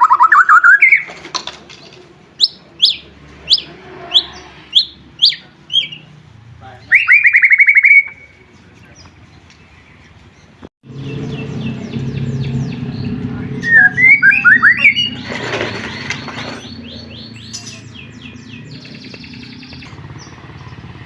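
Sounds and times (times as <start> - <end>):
bird trilling: 0.0 - 1.2, 2.4 - 6.2, 6.8 - 9.9, 10.9 - 21.0
sharp downward-sliding bird whistles: 2.4 - 6.0, 6.9 - 8.4, 13.6 - 20.8.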